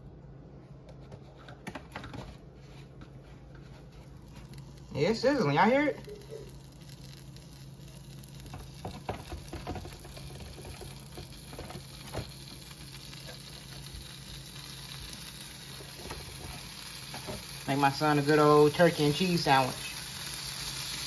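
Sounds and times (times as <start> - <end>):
meat sizzling on a griddle: 4.2 - 21.0.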